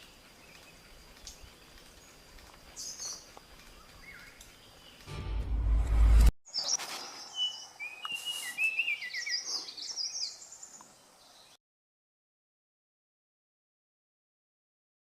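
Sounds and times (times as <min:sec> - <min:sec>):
loud low rumble: 0:05.1 - 0:06.3.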